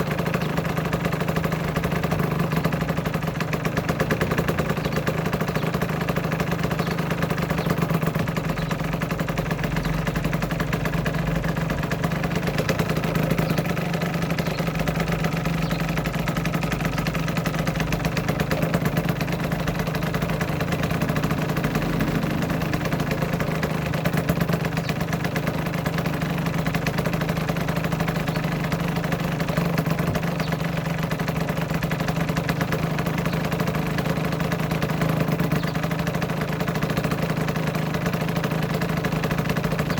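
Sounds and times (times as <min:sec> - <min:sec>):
two-stroke engine idling: 0:00.0 - 0:39.9.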